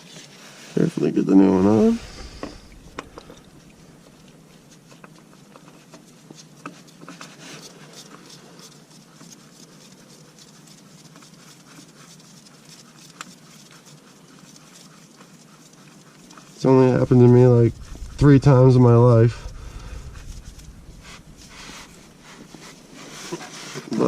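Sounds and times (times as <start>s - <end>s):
soft rustling: 0.0s - 24.0s.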